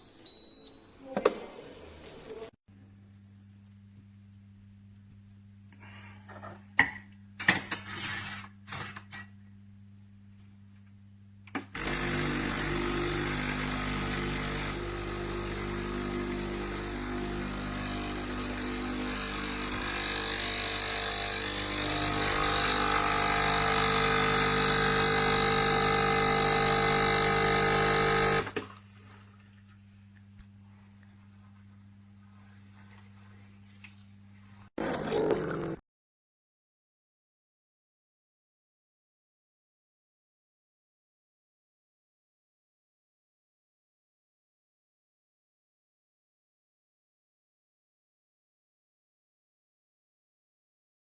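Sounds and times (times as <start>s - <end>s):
espresso machine running: 11.6s - 28.6s.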